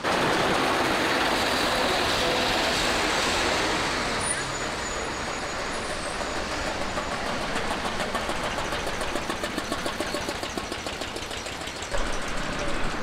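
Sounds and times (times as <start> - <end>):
old car engine puttering: 6.8 - 13.0.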